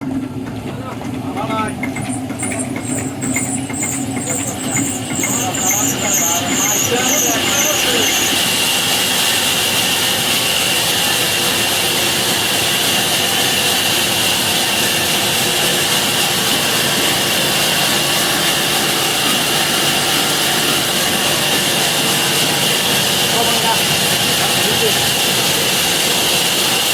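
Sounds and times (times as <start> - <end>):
saw cutting through log: 2.0 - 26.9.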